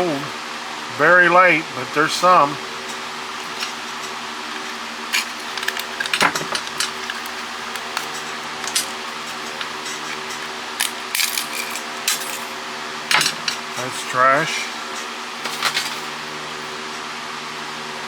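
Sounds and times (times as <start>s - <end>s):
electrical hum: 1.4s - 16.7s
plastic parts clicking and clattering: 2.2s - 16.2s.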